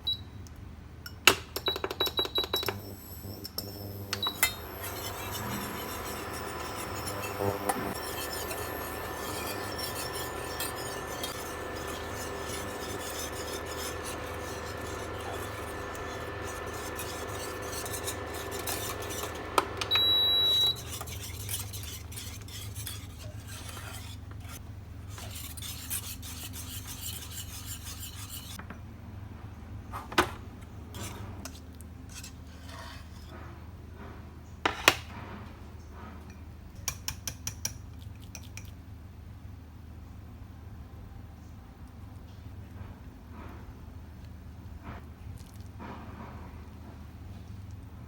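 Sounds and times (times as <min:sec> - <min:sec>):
utensil scraping and stirring bowl: 0:02.6 - 0:28.6, 0:30.9 - 0:33.6.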